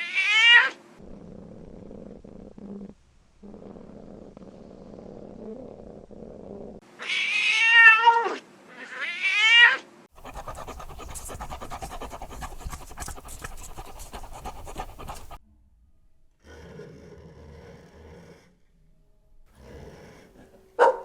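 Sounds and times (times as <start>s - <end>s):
raspy rattling sound: 10.2s - 15.4s.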